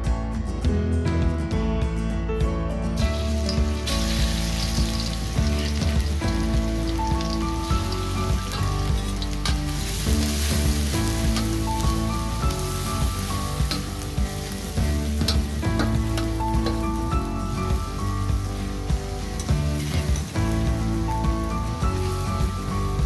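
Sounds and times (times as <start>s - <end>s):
background music: 0.0s - 23.0s
garlic sizzling in hot oil: 3.0s - 23.0s
metal spatula stirring in wok: 3.2s - 16.9s.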